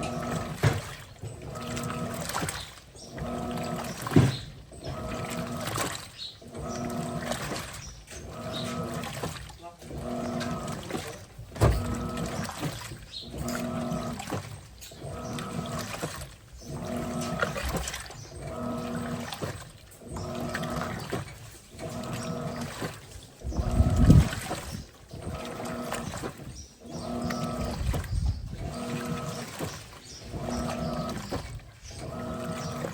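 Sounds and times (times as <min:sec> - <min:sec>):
washing machine motor humming: 0:00.0 - 0:32.9
water sloshing: 0:00.0 - 0:32.9
heavy thump from drum: 0:11.5 - 0:12.0.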